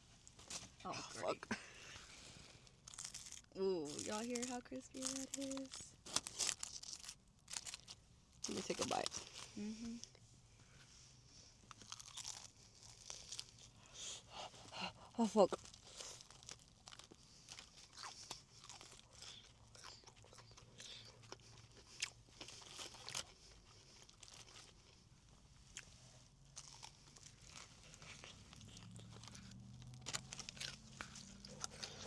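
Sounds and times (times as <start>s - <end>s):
crunching fried chicken: 2.7s - 9.5s, 11.7s - 14.2s, 15.6s - 25.1s, 25.7s - 32.0s.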